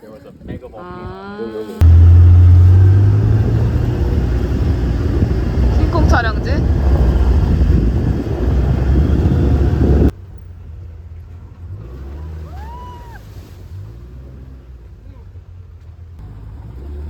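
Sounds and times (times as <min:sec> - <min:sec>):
loud low rumble: 0:01.8 - 0:10.1
rising and falling tone: 0:01.8 - 0:10.1.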